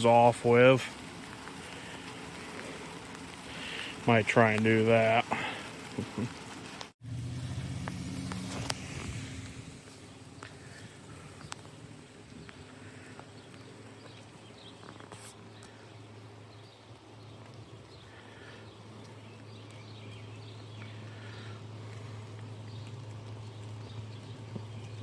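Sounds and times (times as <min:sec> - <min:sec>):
steady low hum: 0:07.0 - 0:25.0
birds chirping faintly: 0:08.2 - 0:25.0.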